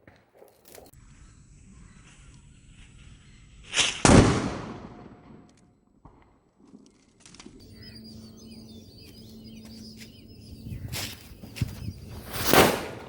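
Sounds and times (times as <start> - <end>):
small birds chirping: 7.6 - 13.0.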